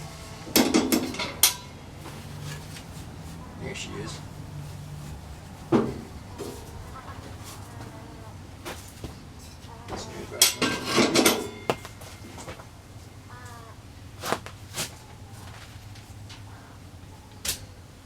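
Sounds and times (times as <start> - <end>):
low steady hum: 0.0 - 18.0
faint bird call: 6.0 - 8.4, 13.2 - 13.9, 14.9 - 17.9
loud rustle with knocks: 8.6 - 12.7.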